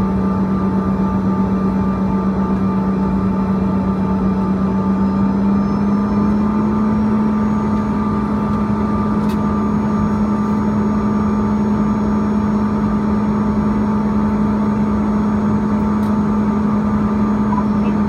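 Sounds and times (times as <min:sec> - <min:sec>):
jet engine cabin hum: 0:00.0 - 0:18.0.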